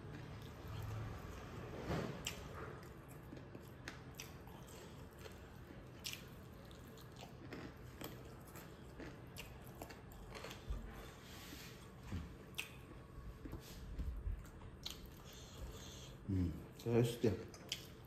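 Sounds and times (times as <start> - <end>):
close chewing and mouth sounds: 0.0 - 18.0.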